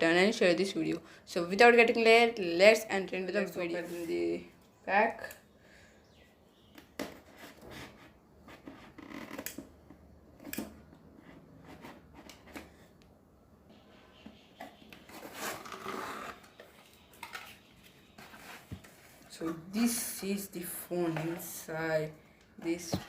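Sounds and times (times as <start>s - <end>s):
packaging scrapes and rustles: 15.1s - 16.7s.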